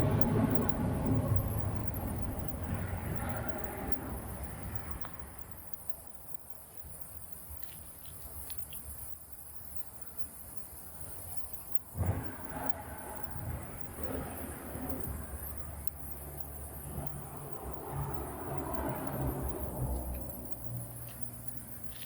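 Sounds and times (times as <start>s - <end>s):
low traffic rumble: 0.0s - 6.6s, 11.6s - 22.0s
insects chirring: 0.0s - 22.0s.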